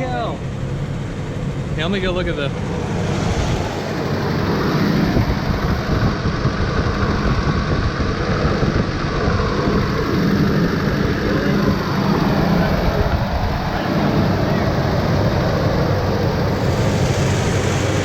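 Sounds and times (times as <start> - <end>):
car engine idling: 0.5 - 6.0, 16.4 - 18.0.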